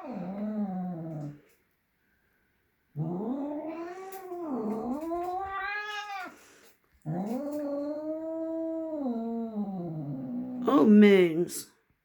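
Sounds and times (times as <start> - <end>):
cat yowling: 3.4 - 6.4.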